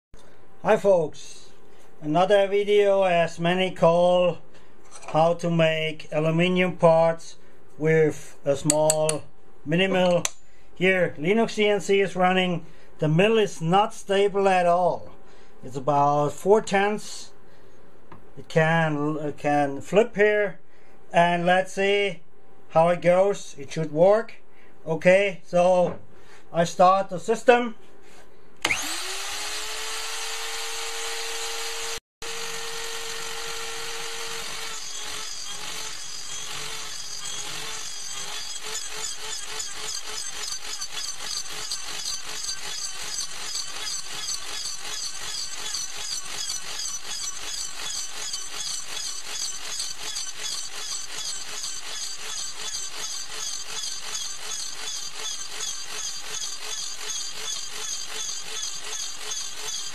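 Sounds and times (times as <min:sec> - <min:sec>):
mill spindle whine: 0:28.6 - 0:59.9
end mill cutting aluminium chatter: 0:32.3 - 0:59.9.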